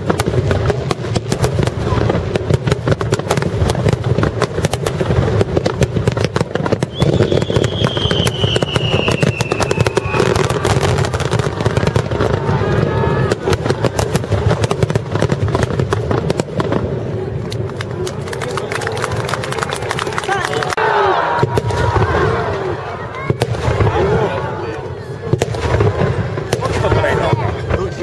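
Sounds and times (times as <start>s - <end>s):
firework bangs and crackles: 0.0s - 28.0s
firework whistle falling in pitch: 6.8s - 10.8s.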